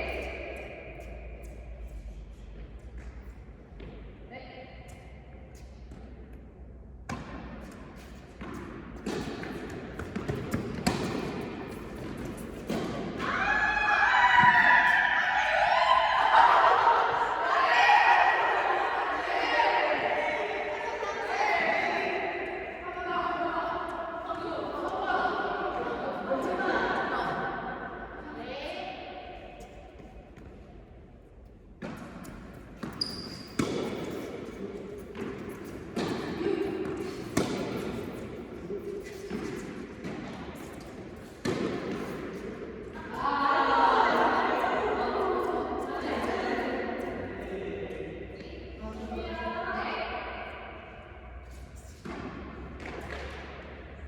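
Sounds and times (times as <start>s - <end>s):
tennis ball struck and bouncing: 8.4s - 13.2s, 31.8s - 34.4s, 35.0s - 38.2s, 39.1s - 42.5s, 52.0s - 53.8s.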